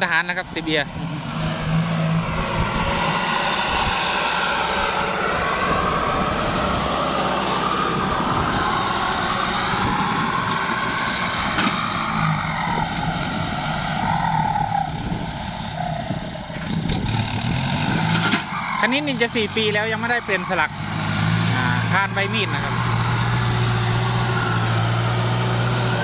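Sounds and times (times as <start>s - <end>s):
tractor diesel engine running: 0.0s - 26.0s
turbo whine: 19.5s - 26.0s.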